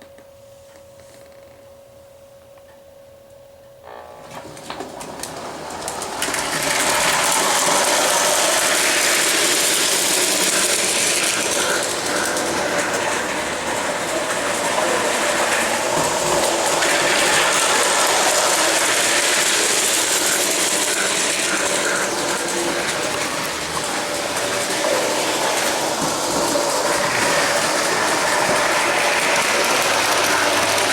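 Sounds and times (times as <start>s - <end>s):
model train running on track: 4.4s - 30.9s.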